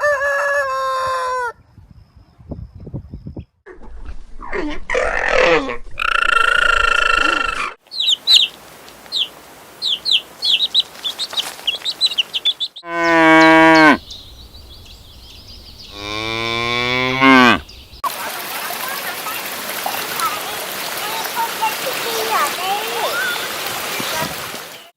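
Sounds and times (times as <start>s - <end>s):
bird chirps: 7.9s - 16.5s, 17.2s - 18.0s
cow mooing: 12.8s - 14.2s, 15.8s - 17.8s.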